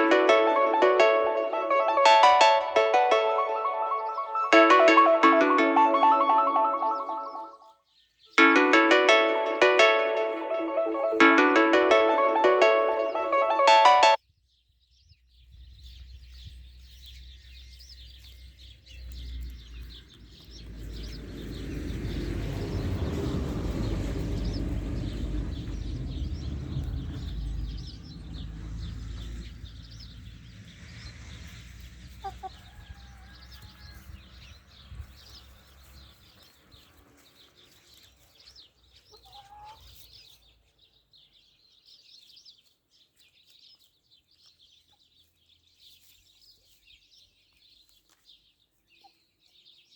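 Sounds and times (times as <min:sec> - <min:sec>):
high chirping: 0:00.0 - 0:07.6
chickens clucking: 0:32.2 - 0:32.6, 0:39.1 - 0:40.0.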